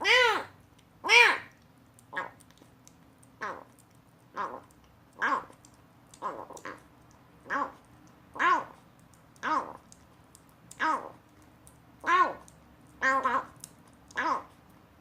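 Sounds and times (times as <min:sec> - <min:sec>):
kitten mewing: 0:03.4 - 0:03.7, 0:04.4 - 0:06.8, 0:07.4 - 0:07.8, 0:08.4 - 0:08.8, 0:09.4 - 0:09.8, 0:12.0 - 0:14.5.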